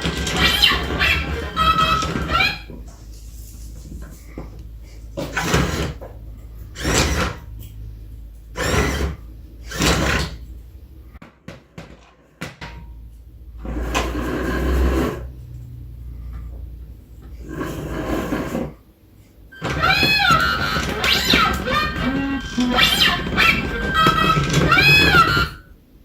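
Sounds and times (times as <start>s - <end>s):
toy robot motors surging: 0.0s - 2.7s, 5.2s - 6.1s, 6.7s - 7.6s, 8.5s - 10.5s, 19.6s - 25.7s
low hum: 2.6s - 11.2s, 12.7s - 17.6s.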